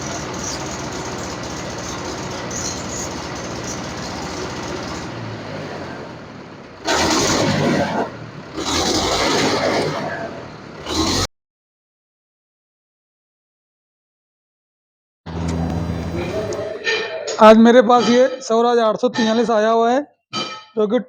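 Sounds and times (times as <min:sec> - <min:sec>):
loud engine bursts: 0:00.0 - 0:11.3, 0:15.3 - 0:17.0
tractor diesel engine running: 0:00.0 - 0:11.3, 0:15.3 - 0:17.0.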